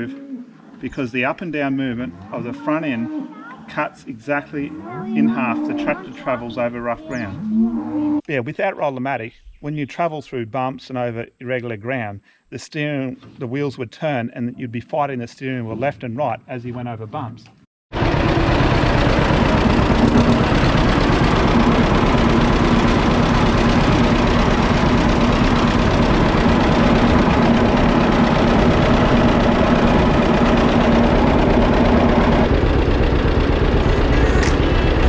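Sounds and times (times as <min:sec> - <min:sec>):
tractor engine pulsing: 0:18.0 - 0:35.0.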